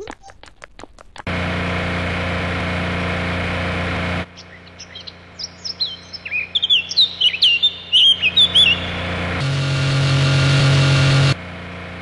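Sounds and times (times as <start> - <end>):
vehicle engine hum: 0.0 - 12.0
small birds chirping: 4.3 - 9.2.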